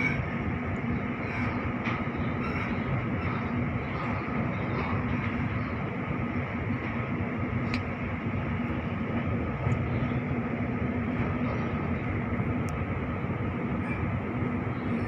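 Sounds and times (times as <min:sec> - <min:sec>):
low steady hum: 0:00.0 - 0:15.0
train wheels rumbling on rails: 0:00.0 - 0:15.0.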